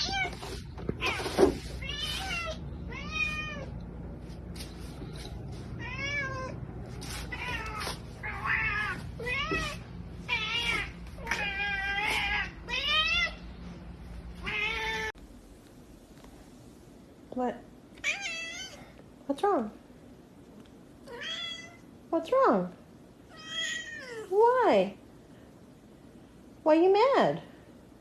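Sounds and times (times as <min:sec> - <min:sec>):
cat meowing: 0:00.0 - 0:00.4, 0:01.0 - 0:03.7, 0:05.8 - 0:06.6, 0:07.3 - 0:13.4, 0:14.4 - 0:15.1, 0:18.0 - 0:18.9, 0:21.1 - 0:21.8, 0:23.3 - 0:24.3.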